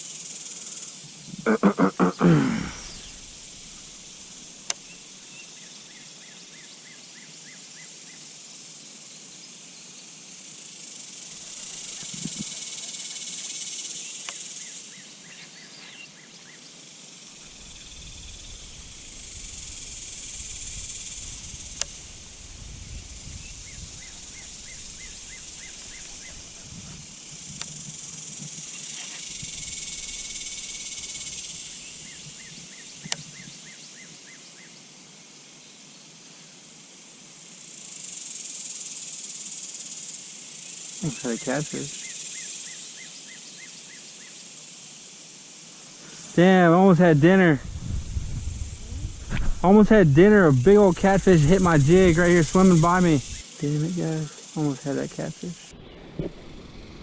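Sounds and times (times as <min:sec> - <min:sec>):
insect chirps: 0:00.0 - 0:57.0
insects buzzing: 0:00.0 - 0:57.0
low rumble: 0:47.6 - 0:52.2.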